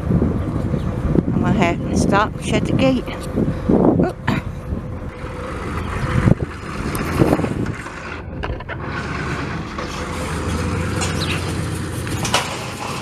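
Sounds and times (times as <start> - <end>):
vehicle engine running: 0.0 - 13.0
short knocks and rattles: 5.1 - 13.0.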